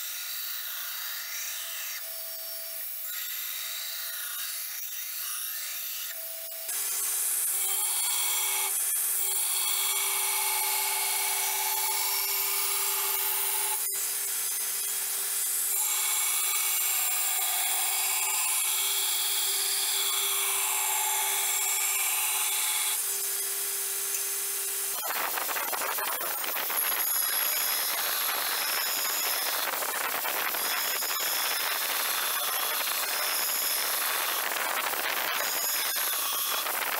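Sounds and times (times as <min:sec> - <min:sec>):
steel grinding rasp: 0:03.1 - 0:23.6, 0:24.6 - 0:36.9
belt grinder humming: 0:06.7 - 0:23.4, 0:24.1 - 0:36.9.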